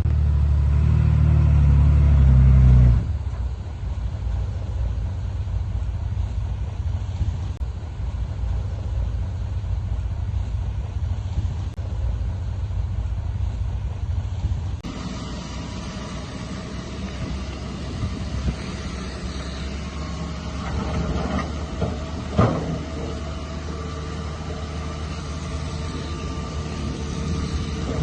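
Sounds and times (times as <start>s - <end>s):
heavy machinery diesel engine rumble: 0.0s - 28.0s.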